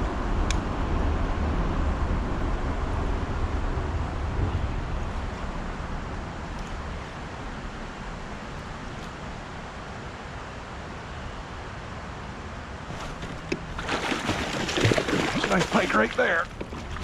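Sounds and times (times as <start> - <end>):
wind noise on microphone: 0.0 - 9.4.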